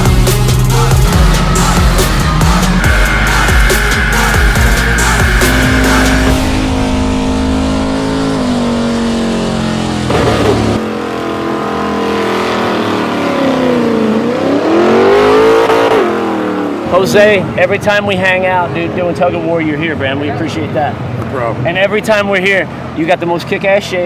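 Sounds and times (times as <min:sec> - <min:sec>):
truck engine revving: 0:00.0 - 0:17.6.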